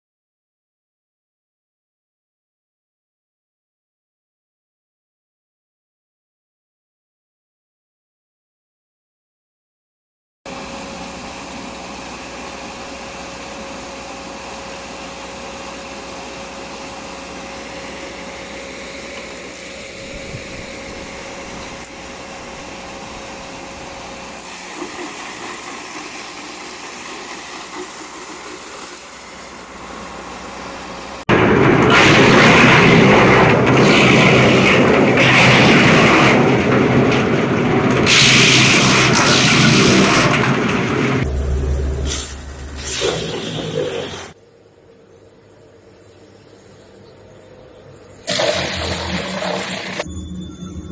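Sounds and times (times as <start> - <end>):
wood chipper humming: 10.5 - 44.3.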